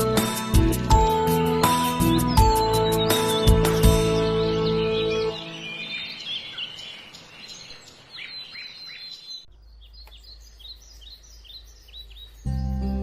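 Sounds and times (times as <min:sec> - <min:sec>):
birds chirping: 0:00.9 - 0:13.0.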